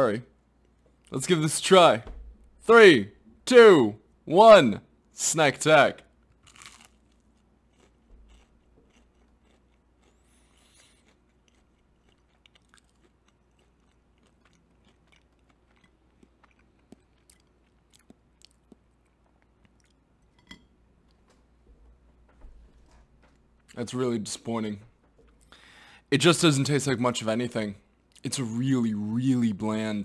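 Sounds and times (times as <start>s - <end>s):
chewing soft food: 6.2s - 21.4s.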